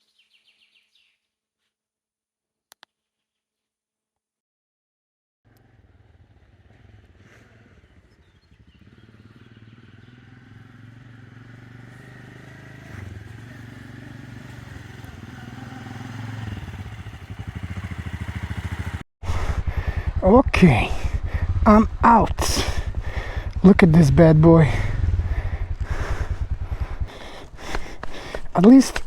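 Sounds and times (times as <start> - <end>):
motorcycle engine running: 5.5 - 29.0.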